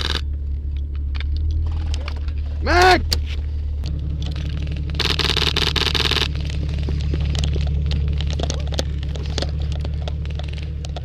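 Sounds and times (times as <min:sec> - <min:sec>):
low rumble: 0:00.0 - 0:11.0
airsoft gun full-auto fire: 0:05.0 - 0:06.3.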